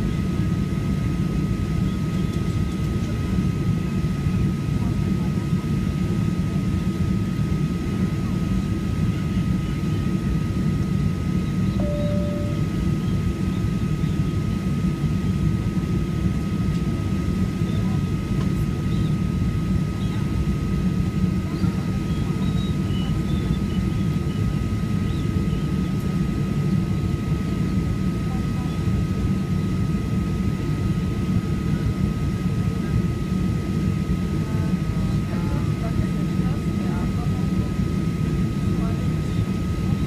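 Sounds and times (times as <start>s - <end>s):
airplane cabin engine rumble: 0.0s - 40.0s
constant thin whine: 0.0s - 40.0s
thin steady high tone: 11.7s - 13.2s.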